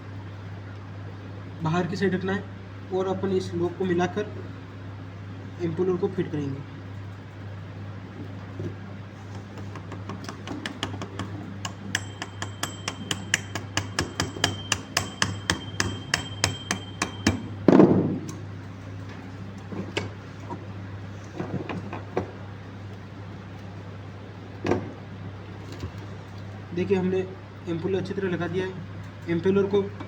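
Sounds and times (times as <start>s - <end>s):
hammer tapping on metal: 9.3s - 17.6s.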